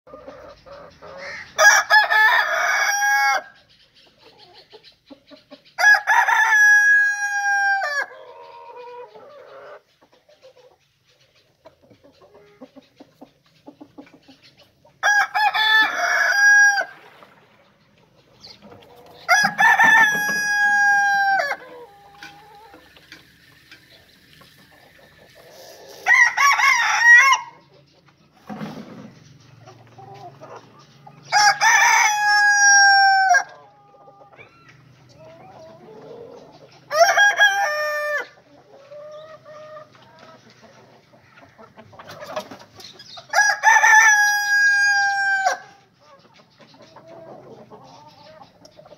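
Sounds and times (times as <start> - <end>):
faint quieter bird calls: 0.1 - 2.0, 3.2 - 6.1, 8.0 - 15.0, 33.5 - 37.2, 45.4 - 48.9
rooster crowing: 1.2 - 3.6, 5.8 - 8.2, 15.0 - 17.0, 19.3 - 22.7, 26.0 - 27.6, 31.3 - 33.6, 43.3 - 45.8.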